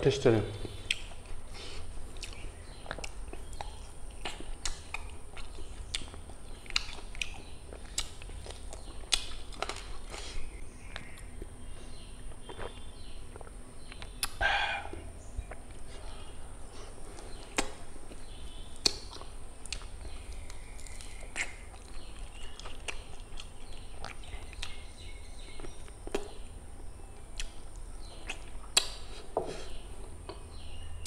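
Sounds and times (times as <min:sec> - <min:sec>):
low steady hum: 0:00.0 - 0:31.0
chewing and wet mouth smacks: 0:00.8 - 0:01.4, 0:02.1 - 0:11.6, 0:12.2 - 0:16.2, 0:17.2 - 0:24.8, 0:27.4 - 0:29.1.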